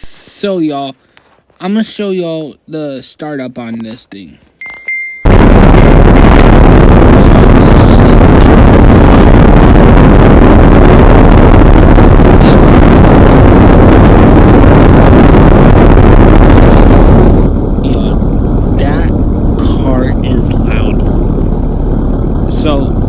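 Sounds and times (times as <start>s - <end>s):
car engine running: 5.3s - 23.0s.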